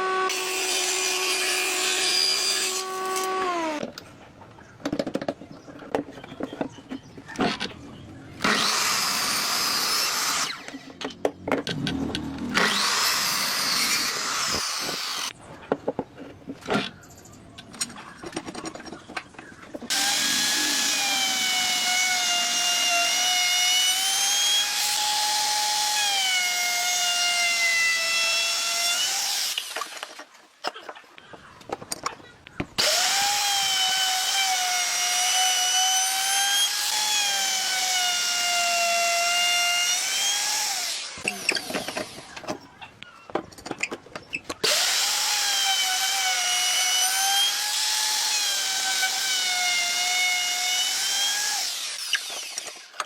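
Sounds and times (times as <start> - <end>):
power tool cutting wood: 0.0 - 3.9, 8.4 - 15.4, 19.9 - 30.2, 32.8 - 42.5, 44.6 - 53.0
electric drill whine: 12.4 - 15.3, 19.9 - 27.2, 32.8 - 42.2, 44.6 - 53.0.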